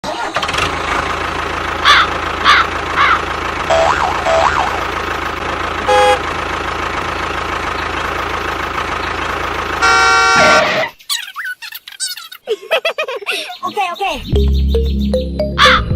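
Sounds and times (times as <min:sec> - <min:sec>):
engine drone: 0:00.1 - 0:11.0
horn honking: 0:03.6 - 0:04.9, 0:05.8 - 0:06.5, 0:09.7 - 0:10.9
chirping siren sweeps: 0:03.7 - 0:04.9
warbling tones: 0:03.7 - 0:05.1.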